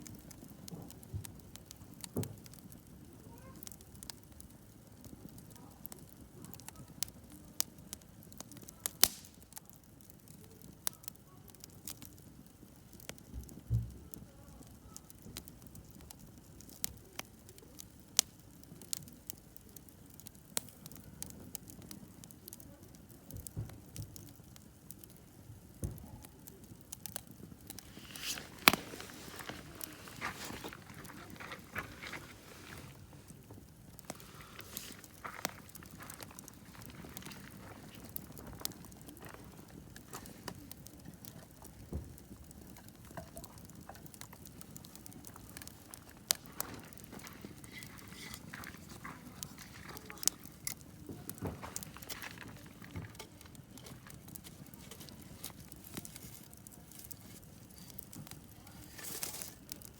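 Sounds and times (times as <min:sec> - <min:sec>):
campfire crackling and popping: 0:00.0 - 0:59.9
fire hissing: 0:08.6 - 0:09.6, 0:25.8 - 0:59.9.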